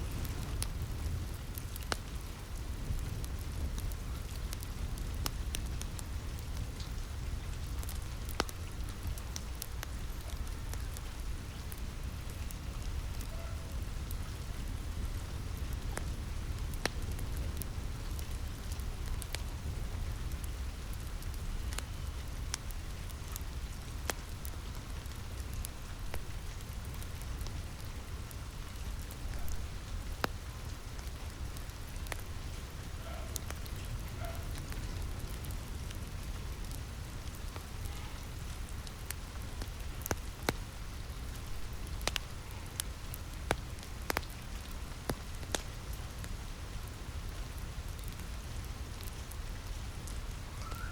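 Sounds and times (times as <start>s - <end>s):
rain on a roof: 0.0s - 50.9s
wood fire crackling: 0.0s - 50.9s.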